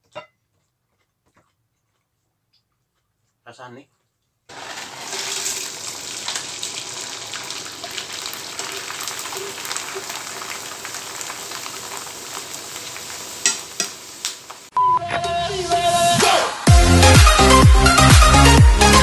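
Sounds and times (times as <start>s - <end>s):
crackers deep-frying in oil: 4.5s - 14.7s.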